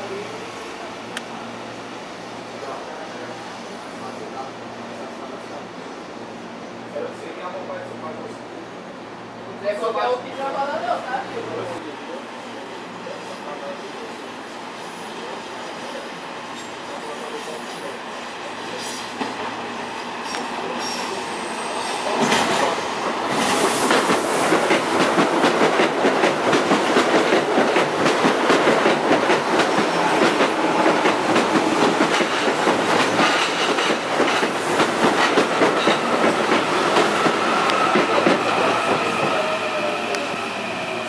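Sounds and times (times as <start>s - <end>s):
electric train passing: 11.7s - 41.0s.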